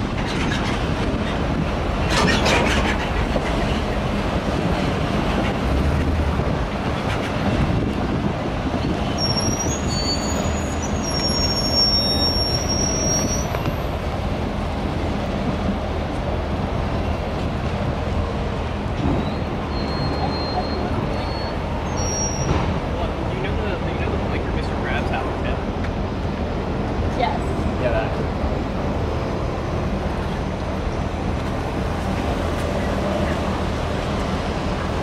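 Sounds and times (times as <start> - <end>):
freight train wheels rumbling on rail: 0.0 - 35.0
high-pitched wheel squeal: 8.8 - 13.9, 19.2 - 22.7.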